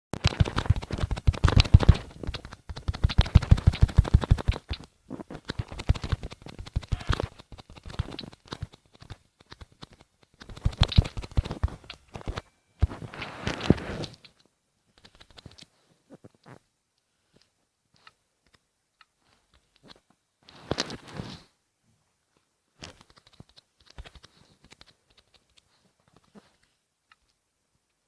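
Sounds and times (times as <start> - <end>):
rapid sharp clicks: 0.2 - 12.4, 15.0 - 15.7, 22.8 - 25.7.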